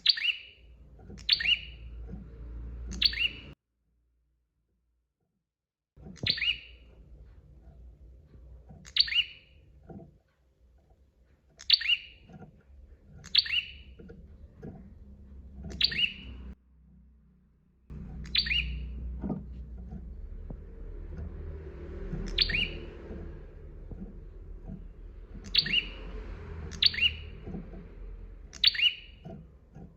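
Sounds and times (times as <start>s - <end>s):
bird chirping: 0.0s - 3.6s, 6.0s - 7.8s, 8.6s - 10.1s, 11.5s - 16.6s, 17.9s - 29.9s.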